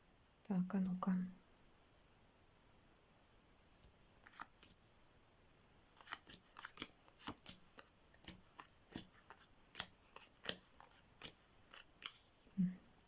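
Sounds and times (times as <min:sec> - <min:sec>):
playing cards snapping: 0:04.2 - 0:04.8, 0:05.9 - 0:12.3.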